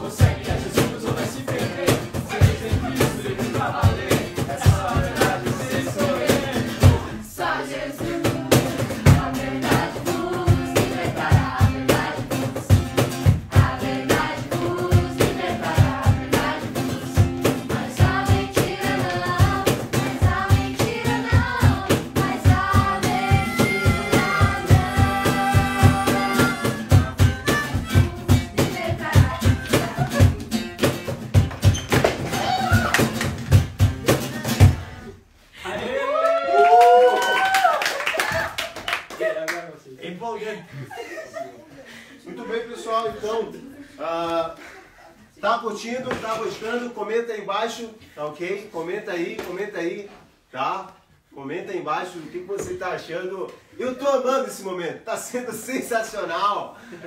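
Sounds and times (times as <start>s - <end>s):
steady drum beat: 0.0s - 7.2s, 8.0s - 32.1s, 33.0s - 35.0s
person singing praise song: 0.0s - 12.7s, 13.5s - 30.5s
band accompaniment: 15.9s - 31.8s.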